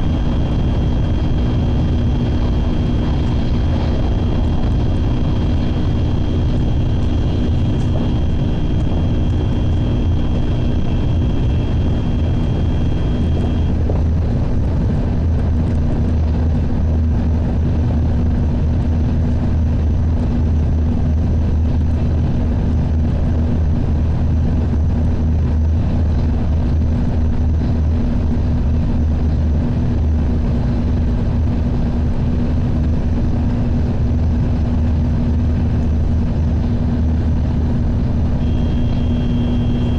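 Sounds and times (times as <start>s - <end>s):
faint high whine: 0.0s - 14.0s, 34.6s - 39.9s
train cabin rumble and hum: 0.0s - 39.9s.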